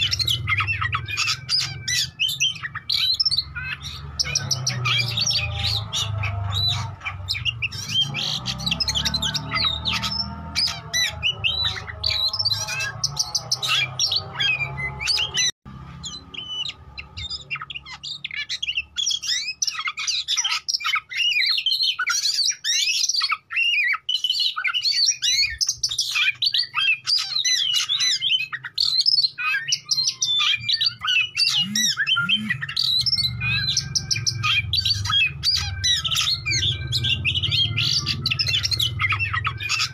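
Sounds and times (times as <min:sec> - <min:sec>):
songbird whistles and chirps: 0:00.0 - 0:39.9.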